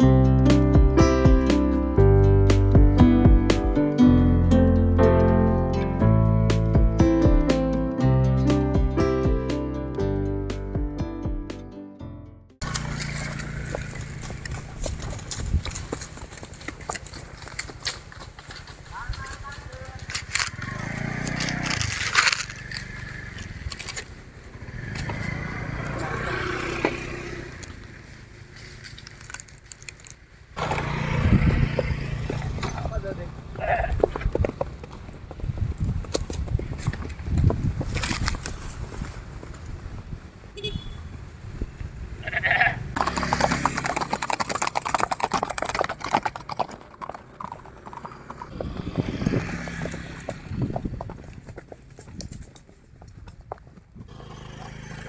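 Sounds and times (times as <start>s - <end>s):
motor engine humming: 0.0s - 11.6s
horse hooves clip-clopping: 12.6s - 26.1s, 27.6s - 41.2s, 41.8s - 55.0s.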